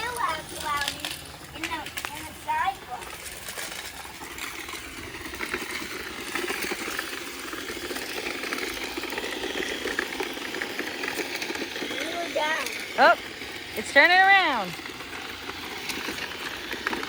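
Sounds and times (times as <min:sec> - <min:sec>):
debris rattling: 0:00.0 - 0:17.0
robot vacuum whirring: 0:04.2 - 0:17.0.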